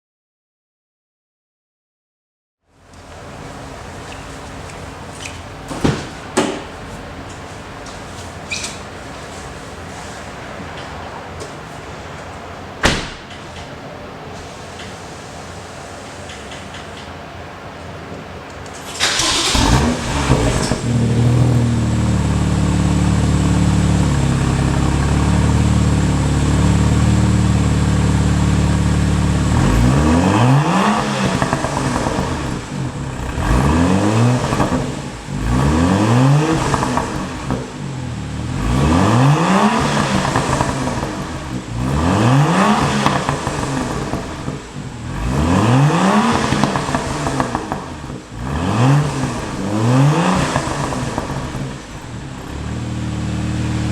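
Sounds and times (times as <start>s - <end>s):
car engine idling: 2.8s - 10.4s, 18.9s - 53.9s
car engine revving: 18.9s - 53.9s.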